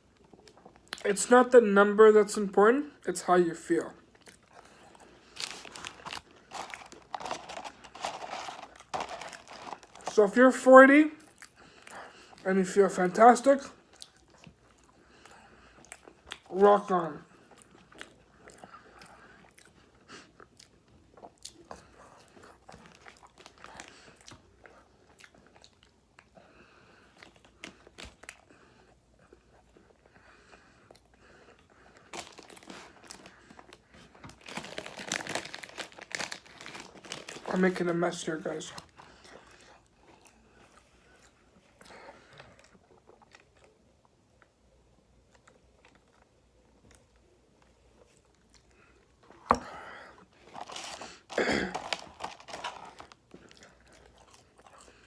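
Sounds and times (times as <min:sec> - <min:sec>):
person chewing food: 0:00.0 - 0:01.0, 0:04.0 - 0:10.2, 0:11.2 - 0:12.4, 0:13.8 - 0:16.5, 0:17.3 - 0:37.5, 0:38.7 - 0:55.0.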